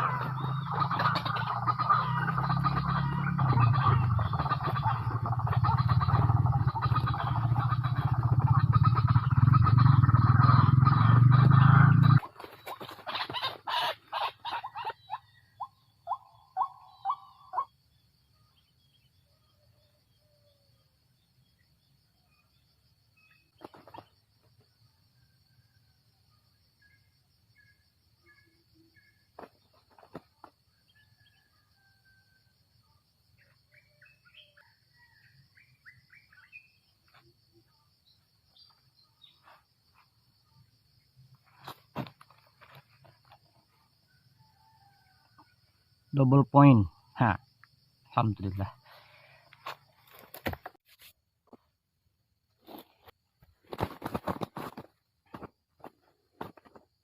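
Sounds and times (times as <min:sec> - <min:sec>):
faint birds chirping: 0:00.0 - 0:50.8
high insect trill: 0:17.1 - 0:50.8.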